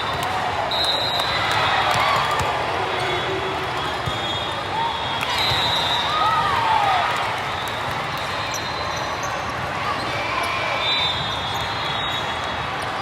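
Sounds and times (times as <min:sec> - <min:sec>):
crowd chatter: 0:00.0 - 0:13.0
balls bouncing on court floor: 0:01.2 - 0:04.3.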